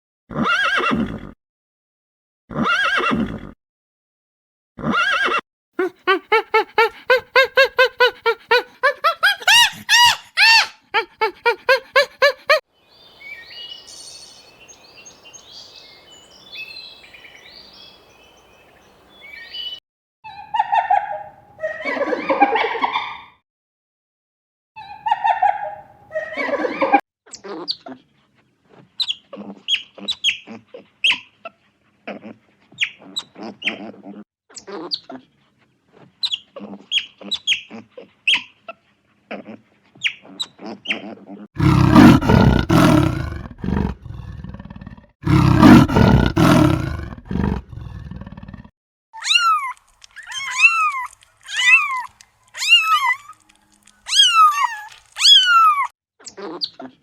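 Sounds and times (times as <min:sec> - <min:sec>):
harsh animal calls: 0:05.8 - 0:12.6, 0:40.5 - 0:53.4
rising and falling cries: 0:05.8 - 0:12.6.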